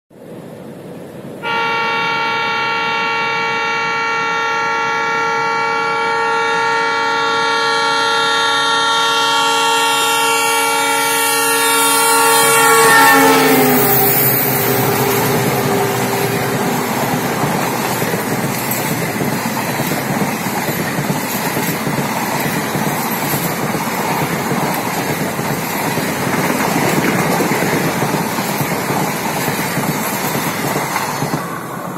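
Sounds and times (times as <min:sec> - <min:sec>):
train horn multi-tone blast: 0:01.4 - 0:18.3
train wheels rumbling and clattering: 0:11.2 - 0:31.9.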